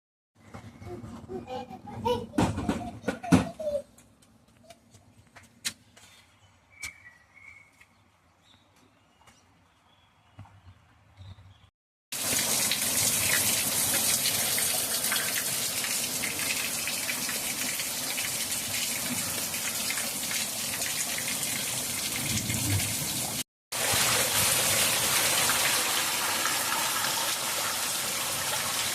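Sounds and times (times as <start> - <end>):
heavy rain pouring: 18.9 - 28.9.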